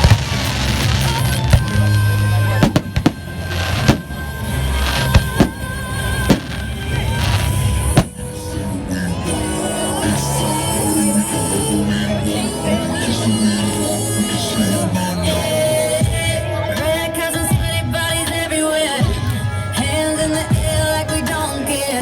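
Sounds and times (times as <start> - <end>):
fireworks bangs: 0.0 - 8.4
pop music: 0.0 - 22.0.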